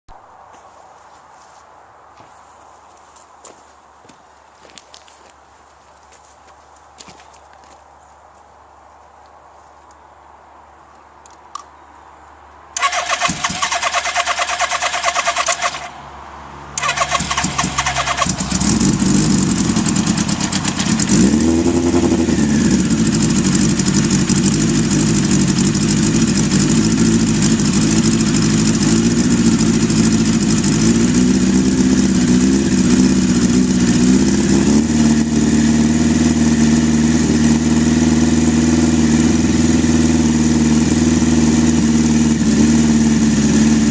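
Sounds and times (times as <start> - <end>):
motorcycle engine idling unevenly: 16.8 - 43.9.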